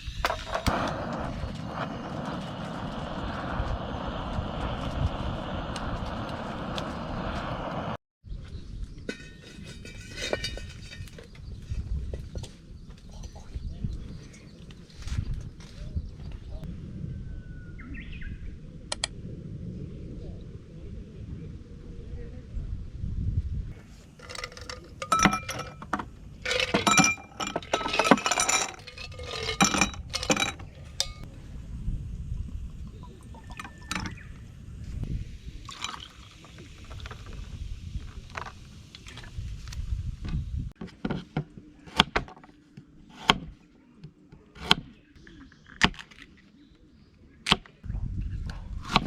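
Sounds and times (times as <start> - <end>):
glassware clinking: 24.2 - 31.3, 33.4 - 34.2, 35.7 - 36.4.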